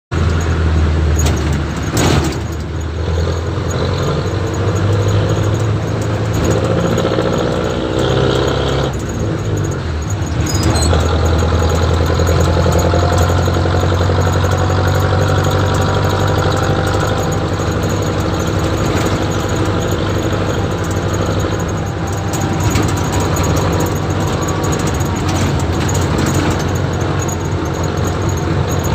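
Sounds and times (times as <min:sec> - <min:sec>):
diesel engine idling: 0:00.1 - 0:28.9.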